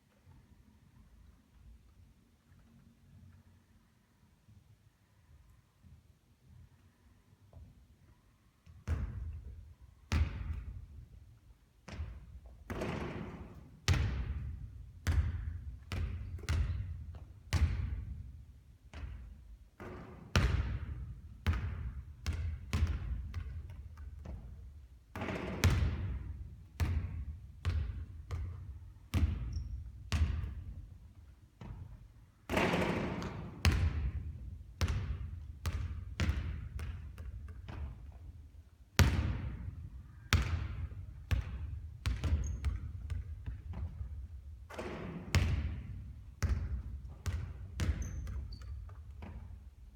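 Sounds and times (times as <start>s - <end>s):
basketball bouncing on court: 8.8s - 11.1s, 11.8s - 38.4s, 39.0s - 49.7s.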